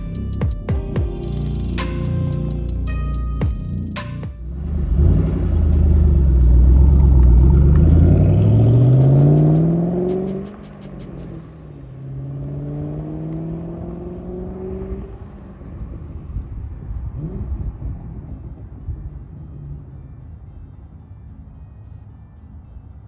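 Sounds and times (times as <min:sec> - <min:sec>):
car engine revving: 0:04.4 - 0:16.2.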